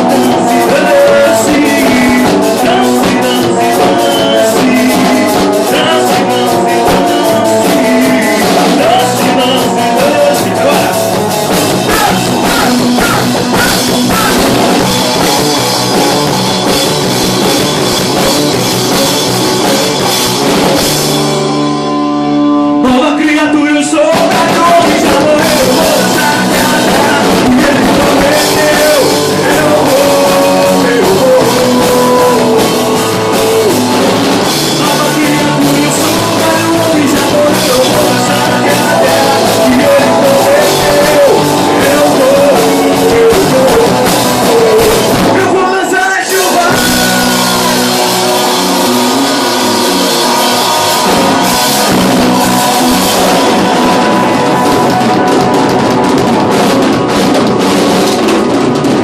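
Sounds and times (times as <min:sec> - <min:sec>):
person singing: 0:00.0 - 0:16.9, 0:21.5 - 0:56.9
live rock band playing: 0:00.0 - 0:59.0.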